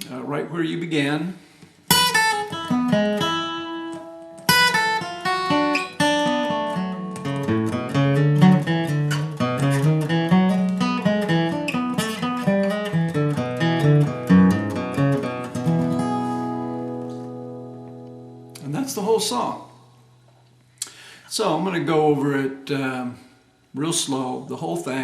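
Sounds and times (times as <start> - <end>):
acoustic guitar playing bluegrass: 1.9 - 20.3.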